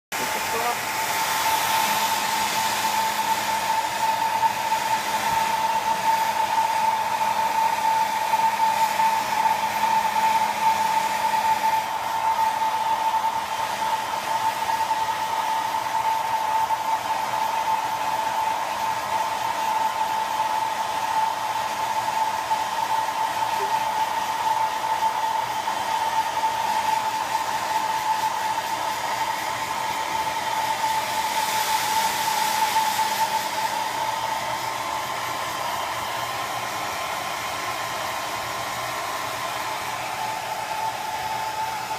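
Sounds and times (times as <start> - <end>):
hair dryer running: 0.0 - 41.9.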